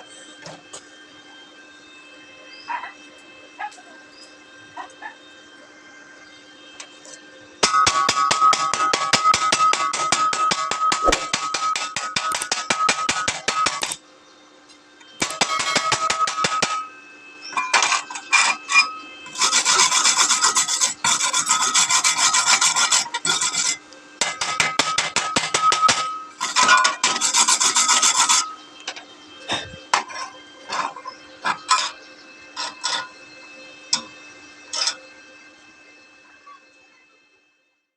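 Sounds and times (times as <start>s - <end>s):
scraping on metal: 17.8s - 28.5s, 29.5s - 33.2s.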